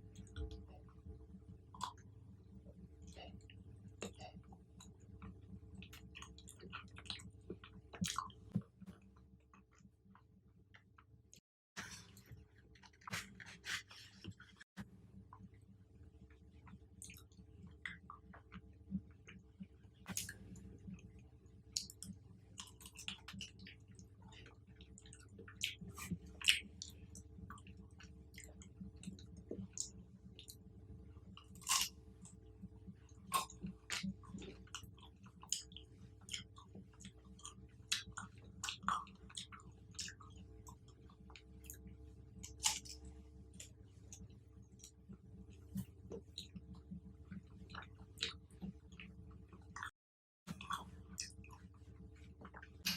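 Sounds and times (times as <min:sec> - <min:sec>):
chewing fruit with crunches: 0:04.0 - 0:09.7, 0:21.7 - 0:30.6, 0:31.4 - 0:32.4, 0:33.0 - 0:49.9, 0:50.5 - 0:52.9.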